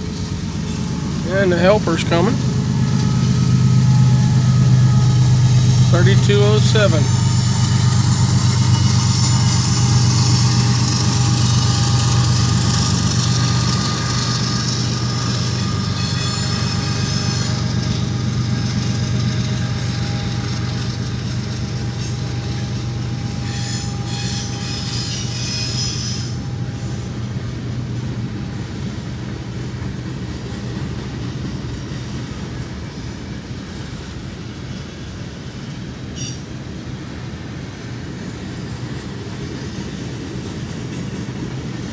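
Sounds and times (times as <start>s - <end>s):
boxcars rolling: 0.0s - 41.9s
diesel locomotive rumbling: 0.0s - 41.9s
hiss from rails: 0.0s - 41.9s
high-pitched wheel squeal: 2.4s - 18.9s, 19.7s - 26.5s, 36.2s - 36.4s.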